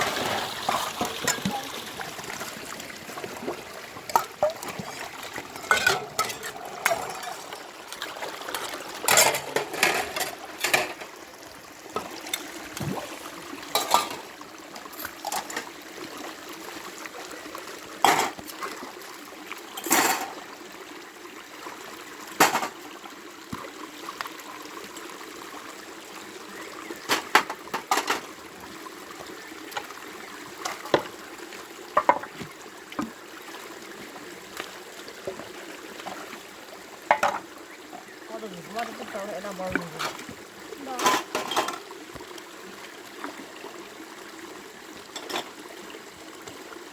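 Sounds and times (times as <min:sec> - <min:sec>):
water trickling: 0:00.0 - 0:46.9
dishes clinking: 0:05.6 - 0:07.6, 0:09.1 - 0:11.1, 0:13.7 - 0:14.2, 0:18.0 - 0:18.4, 0:19.8 - 0:20.4, 0:37.1 - 0:37.4.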